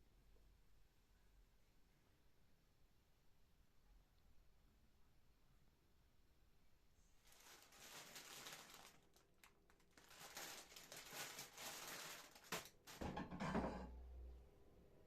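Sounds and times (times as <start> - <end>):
rustling crinkling handling noise: 7.1 - 13.6.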